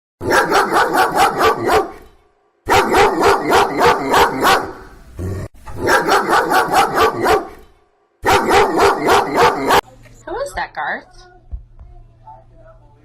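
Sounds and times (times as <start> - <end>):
dog barking rapidly: 0.2 - 2.0, 2.7 - 5.0, 5.8 - 7.6, 8.2 - 9.8.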